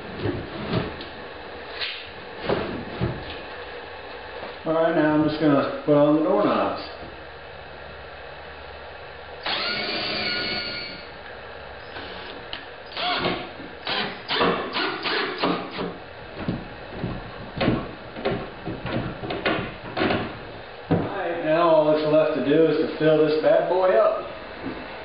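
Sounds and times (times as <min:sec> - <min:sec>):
power tool whirring: 0:09.4 - 0:11.1, 0:11.8 - 0:15.9
knocks and clacks on wood: 0:16.4 - 0:21.1.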